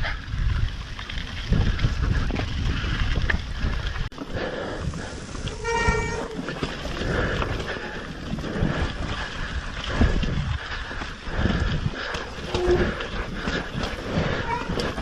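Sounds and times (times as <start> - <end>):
bike tyres rumbling and rattling: 0.0 - 15.0.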